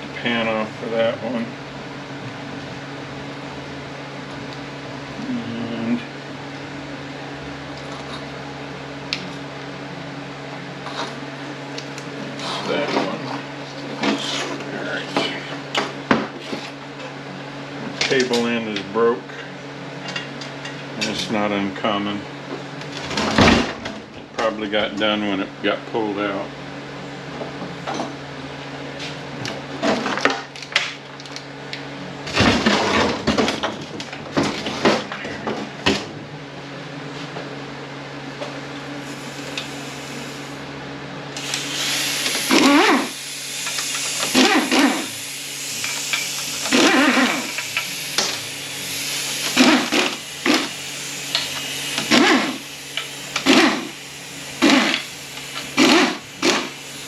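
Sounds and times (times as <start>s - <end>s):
steady low hum: 0.0s - 57.0s
power ratchet bursts: 41.3s - 57.0s.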